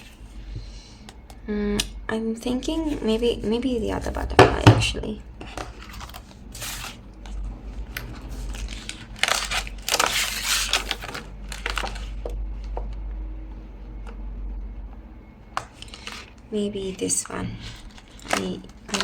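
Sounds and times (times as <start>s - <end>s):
plastic sheet crinkling: 5.4s - 12.4s, 15.6s - 19.0s.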